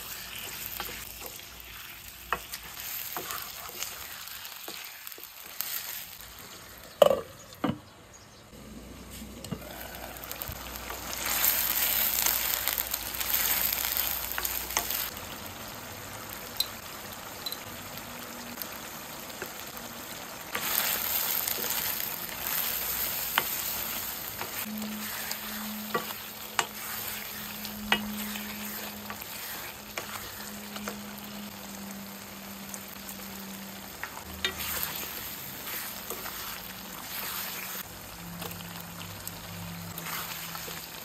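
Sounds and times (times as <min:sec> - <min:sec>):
wooden spatula stirring: 0:00.0 - 0:06.0, 0:21.5 - 0:31.0, 0:34.4 - 0:37.9, 0:40.0 - 0:41.0
chicken sizzling in a pan: 0:00.0 - 0:07.3, 0:08.5 - 0:41.0.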